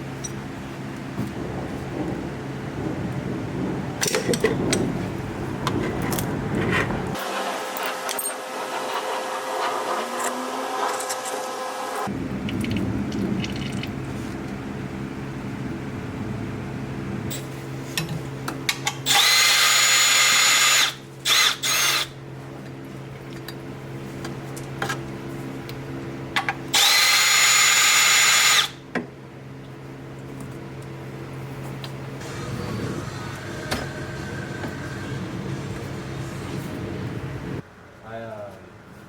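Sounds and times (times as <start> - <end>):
steady low hum: 0.0 - 7.2, 12.1 - 19.1, 28.8 - 39.0
power drill running: 19.0 - 22.1, 26.7 - 28.8.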